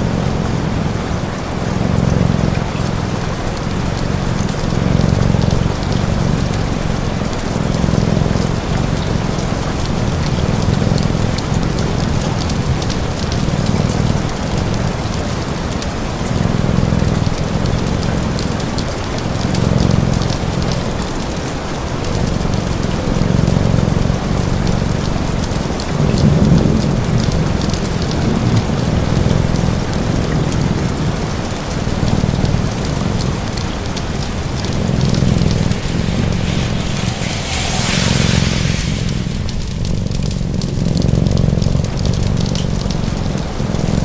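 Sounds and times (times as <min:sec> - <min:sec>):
cat purring: 0:00.0 - 0:44.0
steady rain hiss: 0:00.0 - 0:44.0
fine crackling ticks: 0:01.8 - 0:44.0.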